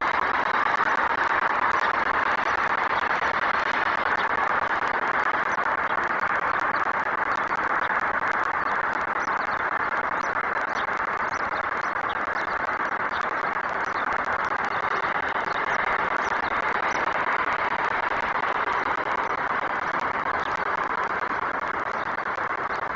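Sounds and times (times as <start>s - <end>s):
distant city traffic: 0.0s - 22.9s
faint high chirps: 0.0s - 22.9s.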